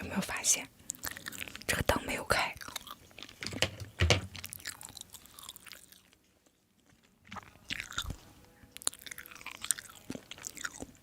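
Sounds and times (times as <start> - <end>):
person chewing and biting food: 0.8 - 1.7, 2.5 - 3.6, 4.3 - 11.0.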